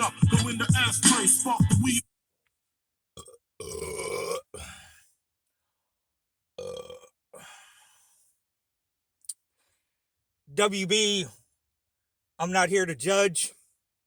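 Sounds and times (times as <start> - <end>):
person belching: 3.2 - 4.7, 6.6 - 7.2.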